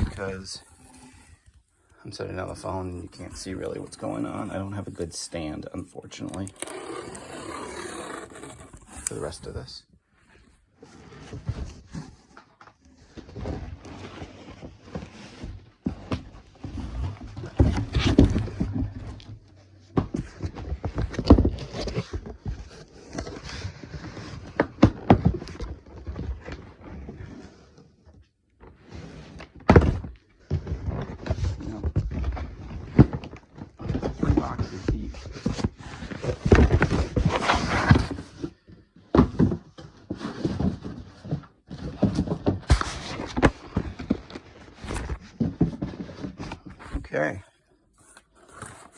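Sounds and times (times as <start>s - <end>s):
cardboard box being handled: 0.0s - 1.5s, 2.4s - 9.7s, 48.0s - 48.9s.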